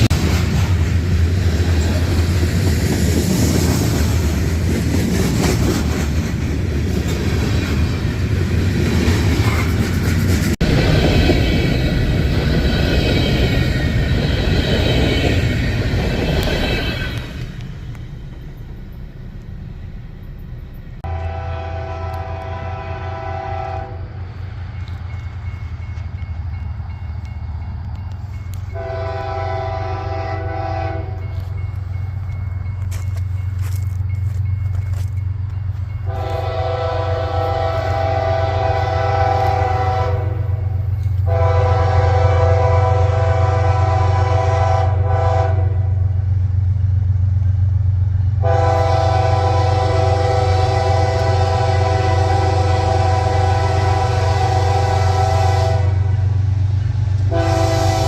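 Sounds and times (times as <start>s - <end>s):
train rumble: 0.0s - 58.0s
locomotive air horn blasts: 21.0s - 24.2s, 28.7s - 31.4s, 36.1s - 46.0s, 48.4s - 56.2s, 57.2s - 58.0s.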